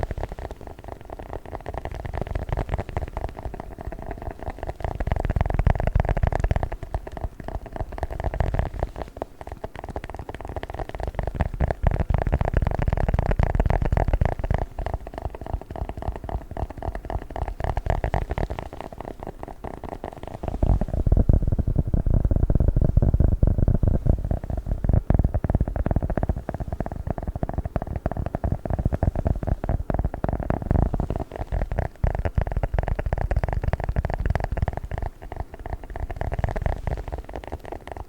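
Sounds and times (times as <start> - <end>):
close-mic rumble: 0.0 - 38.0
crackling and scratching object: 0.0 - 38.0.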